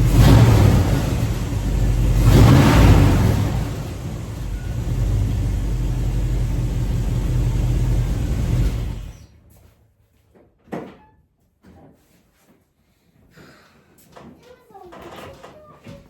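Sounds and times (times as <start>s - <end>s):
car engine and road rumble: 0.0s - 9.3s.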